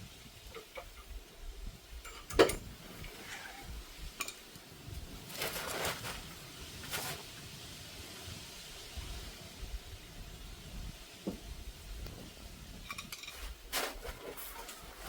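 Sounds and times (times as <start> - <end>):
metal tools clanking: 12.9 - 14.9.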